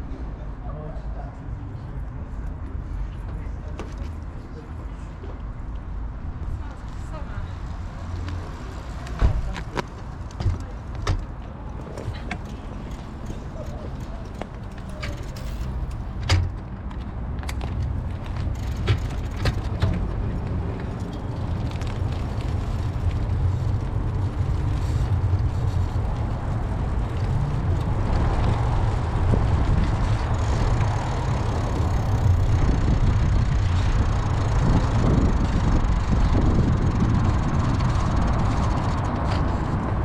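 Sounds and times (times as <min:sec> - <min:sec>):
bicycle road rumble: 0:00.0 - 0:40.0
wind buffeting microphone: 0:06.1 - 0:40.0
sharp clicks or rattles: 0:17.4 - 0:20.1.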